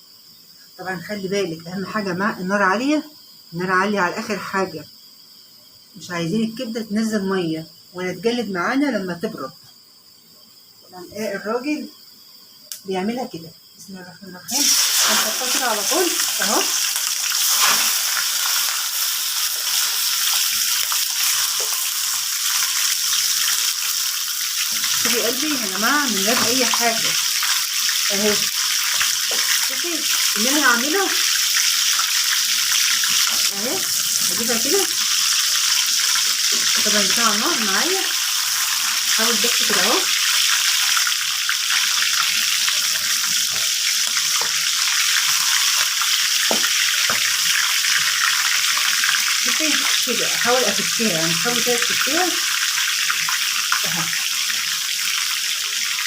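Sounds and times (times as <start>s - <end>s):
liver sizzling in hot oil: 3.2s - 4.2s, 14.5s - 56.0s.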